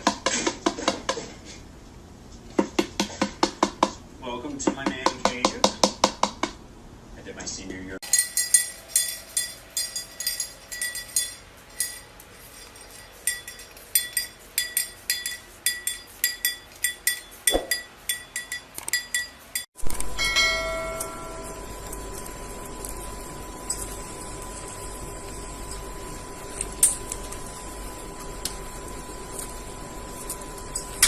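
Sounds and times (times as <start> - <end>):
steady hum: 3.6 - 31.0
small metal bell ringing rapidly: 8.0 - 21.6.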